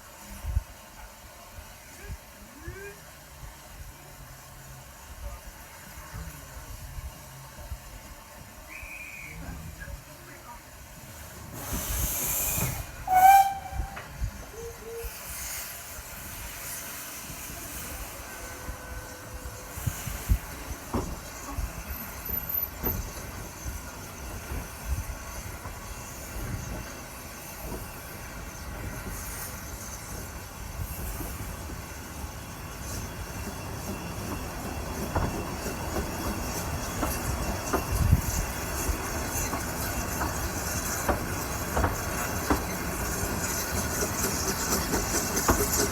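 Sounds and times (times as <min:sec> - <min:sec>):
steam hiss: 0:00.0 - 0:45.9
train running: 0:00.0 - 0:45.9
wind: 0:00.0 - 0:45.9
steam locomotive whistle: 0:11.6 - 0:15.7.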